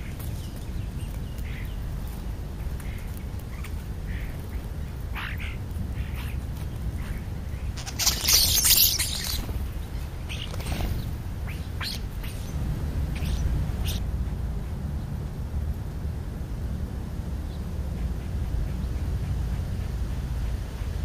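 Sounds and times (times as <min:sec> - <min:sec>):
birds chirping and calling: 0:00.0 - 0:14.0
steady low rumble: 0:00.0 - 0:21.0
loud rustling burst: 0:07.7 - 0:11.7.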